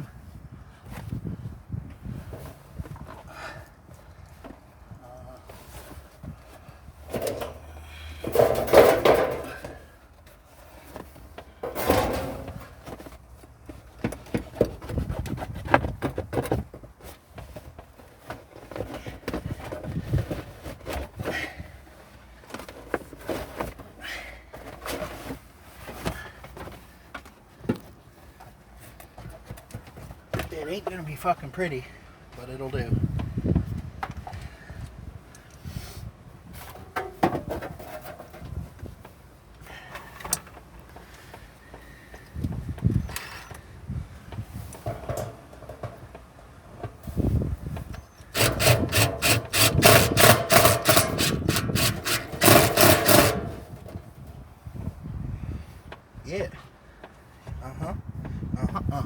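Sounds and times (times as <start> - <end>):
materials and tools clattering: 8.2 - 9.8, 10.7 - 16.6, 48.3 - 54.0
hand saw cutting wood: 48.3 - 54.0.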